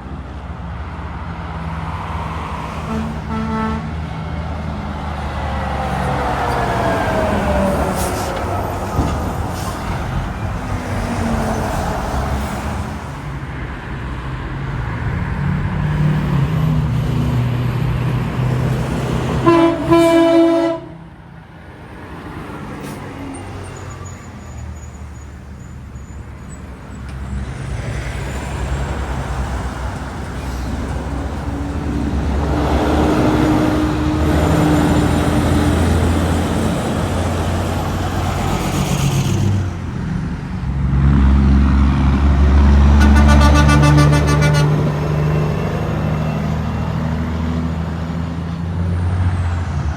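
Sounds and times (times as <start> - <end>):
trucks passing on highway: 0.0 - 49.9
truck air horn: 2.7 - 4.0, 19.3 - 21.1, 31.5 - 36.0, 42.8 - 45.1.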